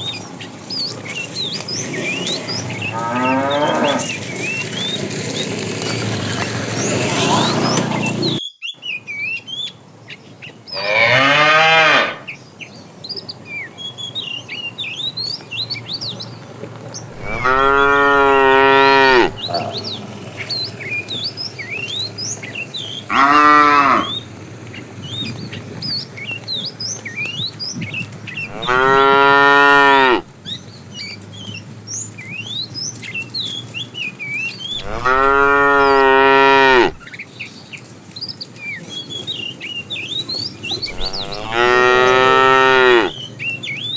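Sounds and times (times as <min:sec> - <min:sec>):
cattle mooing: 0:02.8 - 0:04.2, 0:10.8 - 0:12.3, 0:17.1 - 0:19.8, 0:23.1 - 0:24.2, 0:28.5 - 0:30.3, 0:34.8 - 0:37.0, 0:40.9 - 0:43.2.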